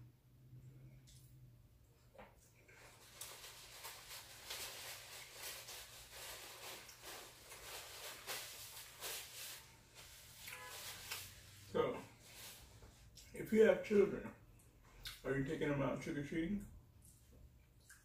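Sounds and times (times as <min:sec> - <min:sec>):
person chewing food: 0:16.9 - 0:18.0.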